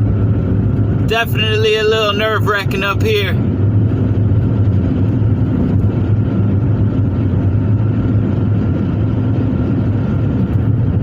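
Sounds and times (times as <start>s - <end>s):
vehicle engine drone: 0.0s - 11.0s.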